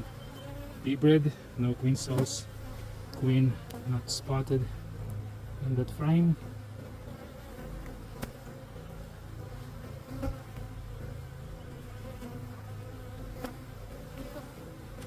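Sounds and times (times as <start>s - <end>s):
honey bees buzzing: 0.0s - 15.0s
hive frames clicking: 1.8s - 3.9s, 6.8s - 8.9s, 10.1s - 11.1s, 13.1s - 15.0s.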